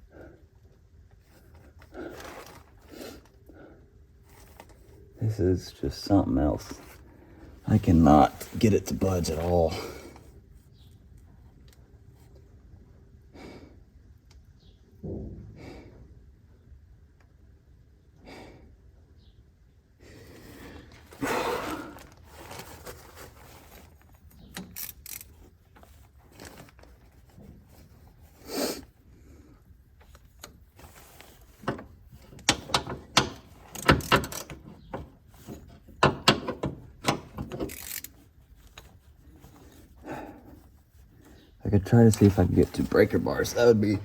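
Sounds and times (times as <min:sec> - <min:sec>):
rustling: 0:01.2 - 0:03.4, 0:06.5 - 0:10.8, 0:20.3 - 0:36.0, 0:36.8 - 0:44.0.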